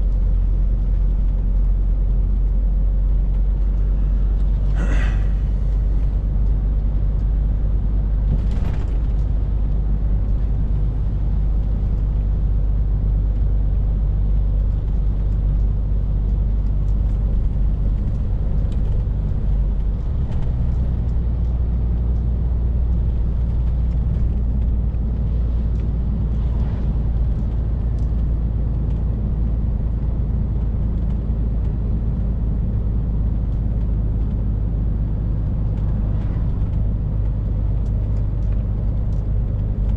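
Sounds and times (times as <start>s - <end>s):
road noise: 0.0s - 39.9s.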